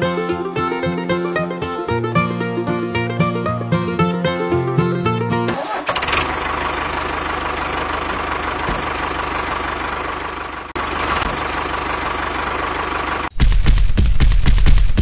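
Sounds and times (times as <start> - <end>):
small engine chugging: 3.0 - 13.3.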